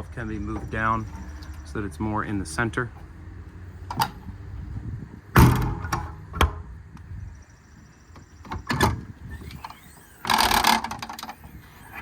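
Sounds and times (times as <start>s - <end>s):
latch clicks: 3.8s - 4.2s
compartment door banging shut: 5.4s - 6.6s.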